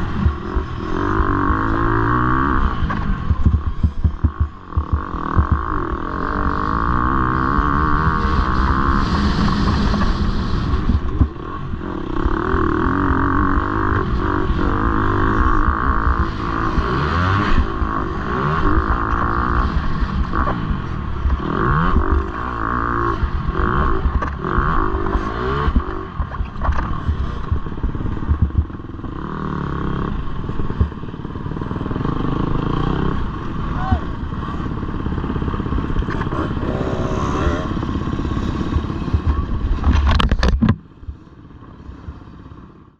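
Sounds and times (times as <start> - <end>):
motocross bikes revving: 0.0 - 40.3.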